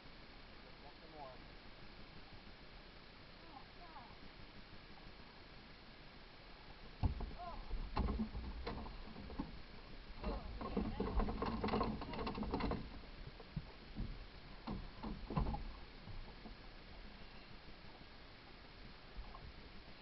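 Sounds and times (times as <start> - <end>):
short knocks: 7.0 - 9.6, 10.2 - 16.6.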